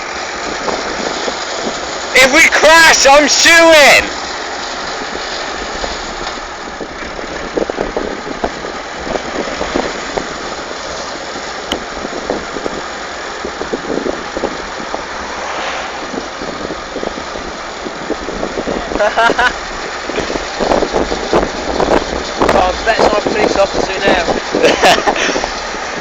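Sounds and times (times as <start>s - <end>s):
tractor engine drone: 0.0s - 26.0s
rattles and knocks: 16.2s - 26.0s.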